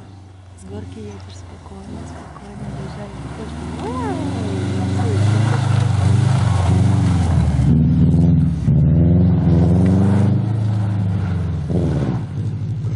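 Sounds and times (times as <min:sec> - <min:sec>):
car engine revving hard: 0:00.0 - 0:12.9.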